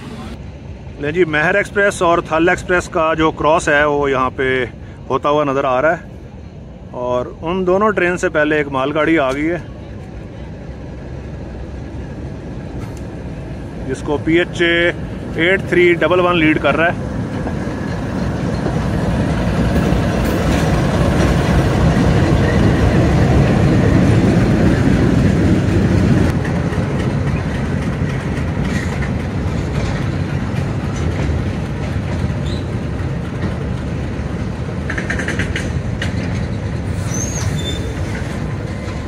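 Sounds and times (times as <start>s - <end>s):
diesel locomotive engine rumbling: 0.0s - 39.0s
wagon wheels clattering over rail joints: 15.3s - 39.0s
metallic squeal: 36.4s - 38.1s.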